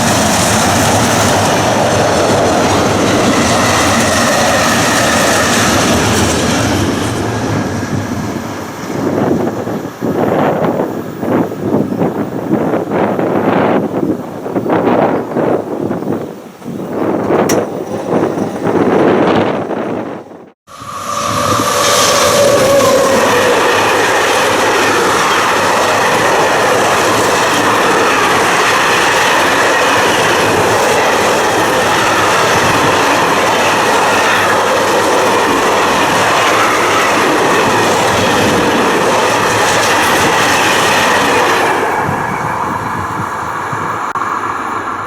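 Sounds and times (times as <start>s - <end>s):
freight train passing: 0.0s - 45.0s
wagon wheels clattering over rails: 15.1s - 20.5s.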